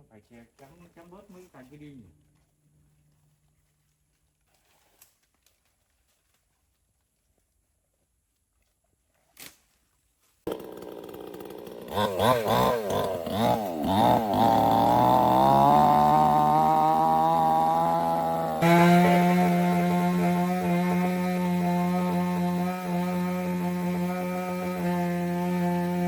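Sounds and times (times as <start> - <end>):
chainsaw idling and revving: 10.5 - 26.0.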